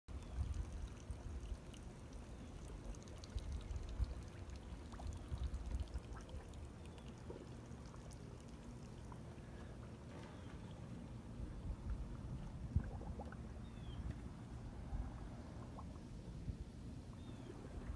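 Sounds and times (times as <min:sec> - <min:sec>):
small water splashes: 0:00.1 - 0:11.0
low rumble: 0:11.1 - 0:17.9.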